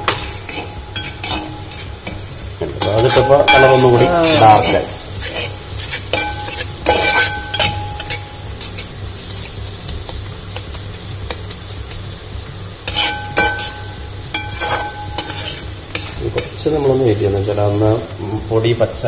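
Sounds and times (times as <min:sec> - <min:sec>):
spatula clinking against pan: 0:00.0 - 0:02.2, 0:02.8 - 0:08.8, 0:12.9 - 0:16.6
spatula stirring and scraping: 0:00.0 - 0:17.1
masala sizzling in oil: 0:00.0 - 0:19.0.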